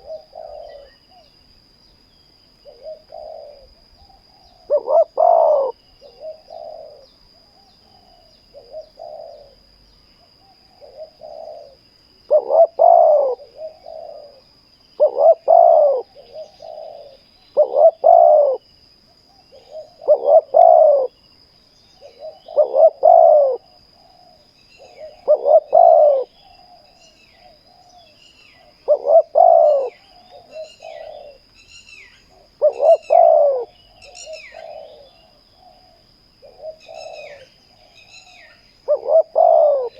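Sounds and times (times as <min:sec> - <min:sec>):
doves cooing: 0:00.0 - 0:01.3, 0:02.6 - 0:18.7, 0:19.3 - 0:21.2, 0:22.0 - 0:39.9.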